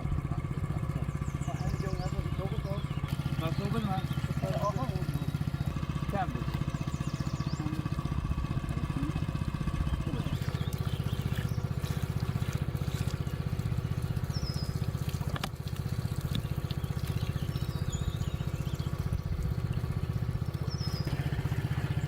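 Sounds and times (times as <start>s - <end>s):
small engine running: 0.0s - 22.0s
water trickling: 0.0s - 22.0s.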